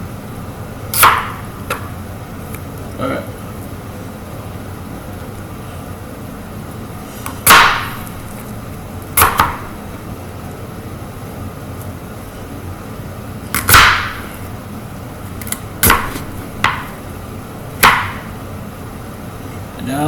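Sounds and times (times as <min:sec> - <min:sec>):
knife chopping on cutting board: 0:00.9 - 0:01.8, 0:07.4 - 0:08.2, 0:09.2 - 0:09.8, 0:13.5 - 0:14.4, 0:15.4 - 0:17.0, 0:17.8 - 0:18.3.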